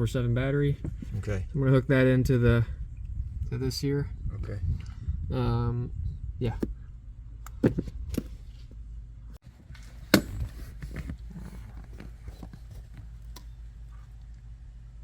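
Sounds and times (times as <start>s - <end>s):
steady low hum: 0.0s - 15.0s
rustles of handling wires: 9.4s - 14.4s.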